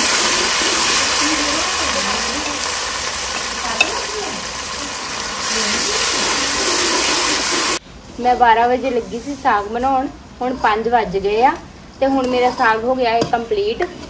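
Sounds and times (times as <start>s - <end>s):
steel ladle stirring: 0.0s - 4.8s
onion and garlic sizzling in oil: 0.0s - 7.8s.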